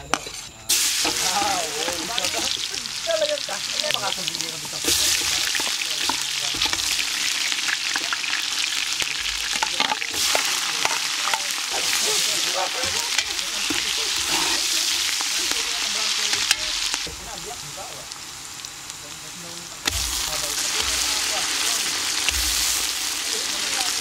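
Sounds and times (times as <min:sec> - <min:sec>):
spatula scraping in pot: 0:00.0 - 0:03.0, 0:03.8 - 0:17.0
hot oil sizzling: 0:00.0 - 0:24.0.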